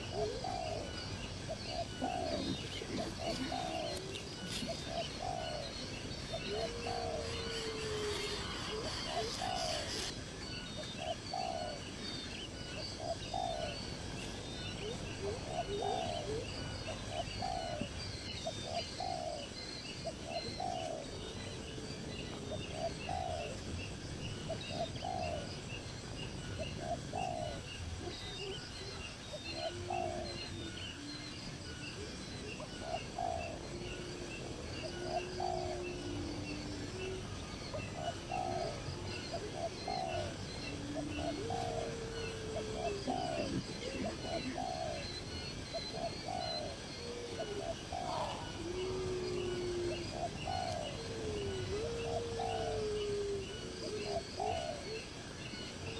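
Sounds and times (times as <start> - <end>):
low cooing: 0.0 - 10.2, 14.8 - 18.0, 26.8 - 55.1.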